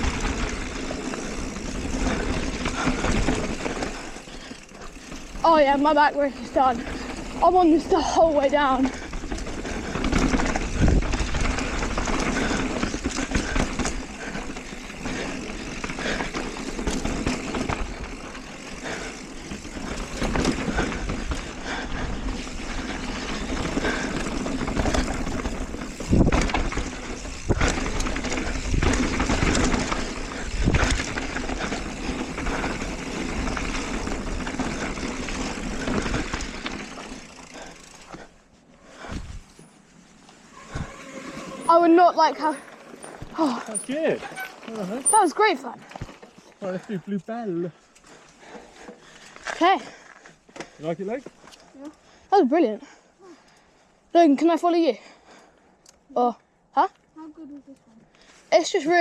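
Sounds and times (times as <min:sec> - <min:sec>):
bike tyre noise on trail: 0:00.0 - 0:57.2, 0:58.1 - 0:59.0
wind rush: 0:40.5 - 0:43.4.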